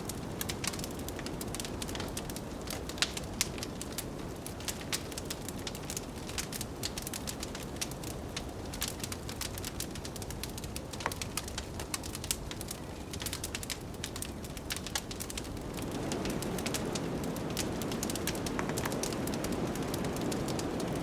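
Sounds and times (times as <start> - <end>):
wood fire crackling and popping: 0.0 - 21.0
blizzard wind rushing: 15.3 - 21.0.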